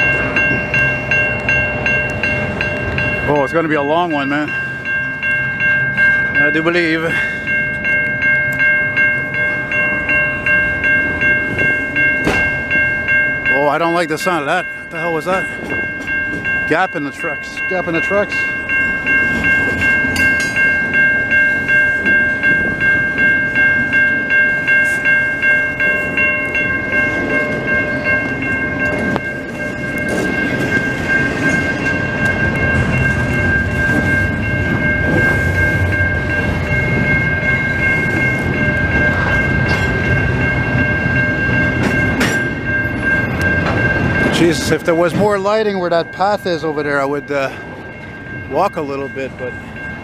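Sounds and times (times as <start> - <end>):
level-crossing warning bell: 0.0 - 50.0
train wheels clattering on rails: 10.5 - 13.2, 13.8 - 24.2, 26.6 - 50.0.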